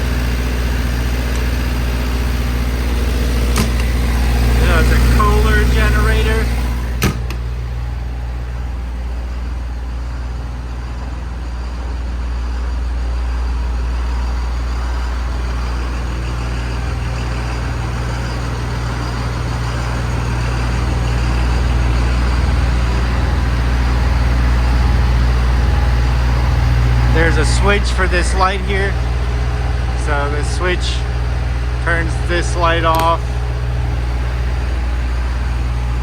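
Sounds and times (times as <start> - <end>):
generator running: 0.0 - 36.0.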